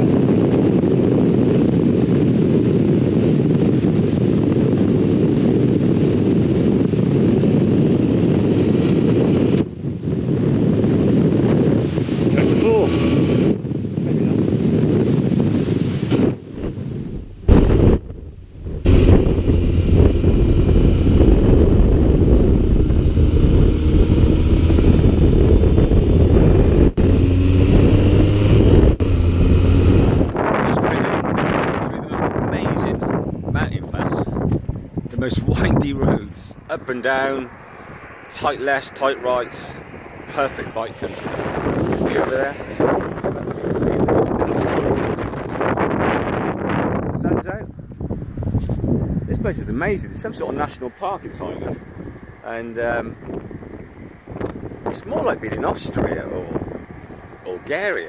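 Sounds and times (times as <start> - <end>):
wind buffeting microphone: 0.0 - 58.0
motorcycle running: 10.3 - 13.7, 16.2 - 30.7.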